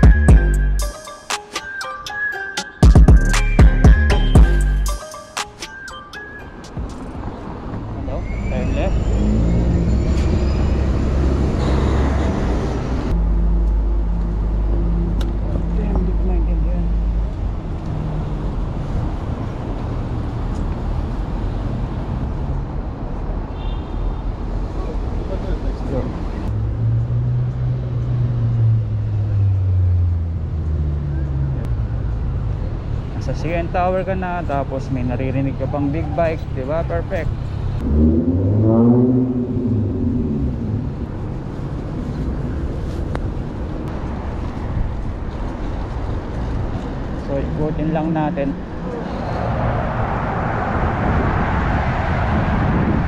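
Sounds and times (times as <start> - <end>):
city road traffic rumble: 0.0 - 53.0
wind buffeting microphone: 48.6 - 53.0.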